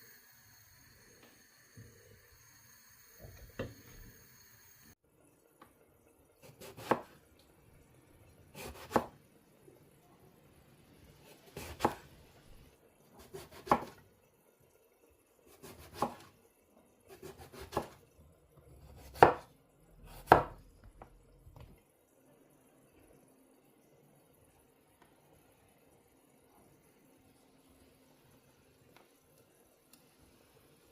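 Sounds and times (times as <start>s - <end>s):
knife chopping on cutting board: 6.5s - 7.2s, 8.6s - 9.2s, 11.6s - 12.1s, 13.2s - 14.0s, 15.6s - 16.3s, 17.2s - 18.0s, 18.9s - 19.5s, 20.1s - 20.6s.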